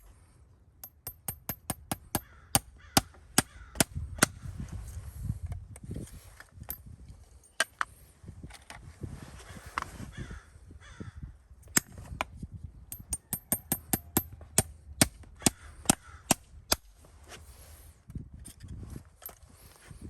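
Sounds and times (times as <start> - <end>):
hammer tapping on metal: 0.8 - 3.9, 12.9 - 14.7.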